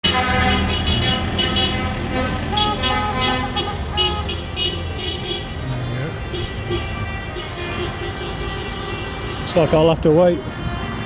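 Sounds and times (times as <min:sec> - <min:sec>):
tractors and lorries rumbling: 0:00.0 - 0:11.0
vehicle horns tooting: 0:00.0 - 0:11.0.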